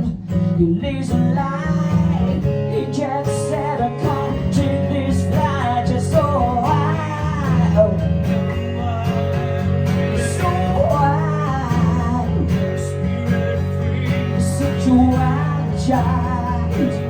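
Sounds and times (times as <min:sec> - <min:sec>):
woman singing: 0:00.0 - 0:09.1, 0:10.2 - 0:17.0
acoustic guitar strumming: 0:00.0 - 0:17.0.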